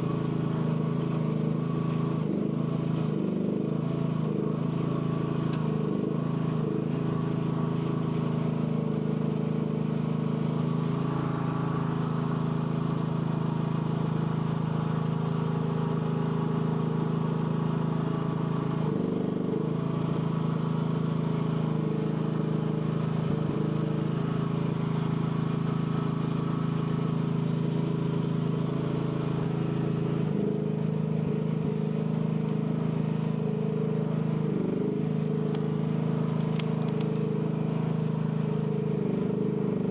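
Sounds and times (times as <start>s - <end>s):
excavator engine running: 17.2s - 39.9s.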